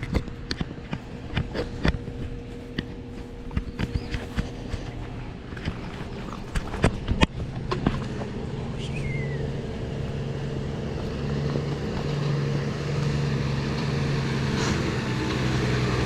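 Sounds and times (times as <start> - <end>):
heavy diesel engine drone: 0.0 - 16.0.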